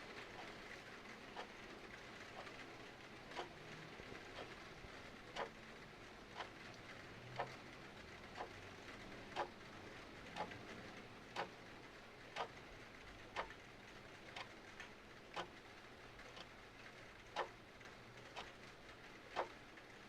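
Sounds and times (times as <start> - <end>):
faint rain hiss: 0.0 - 20.0
clock ticking: 0.3 - 0.5, 3.2 - 3.6, 4.3 - 4.7, 5.3 - 5.6, 6.3 - 6.6, 7.3 - 7.6, 8.3 - 8.6, 9.2 - 9.6, 10.3 - 10.7, 11.3 - 11.6, 12.3 - 12.7, 13.3 - 13.6, 14.2 - 15.6, 16.2 - 16.5, 17.2 - 18.6, 19.3 - 19.6.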